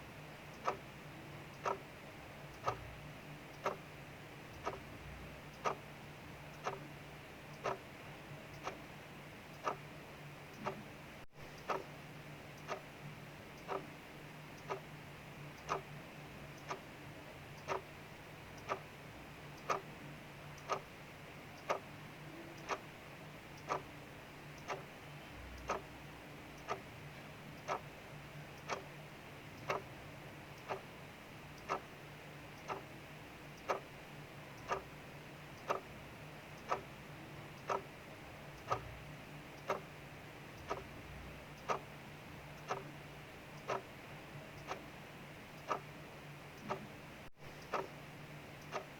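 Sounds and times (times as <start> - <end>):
faint hiss of rain: 0.0 - 48.9
clock ticking: 0.3 - 48.9.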